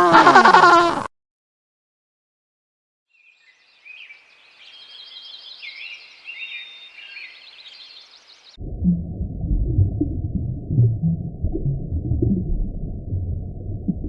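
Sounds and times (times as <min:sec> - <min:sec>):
songbirds chirping and singing: 0:03.2 - 0:08.6.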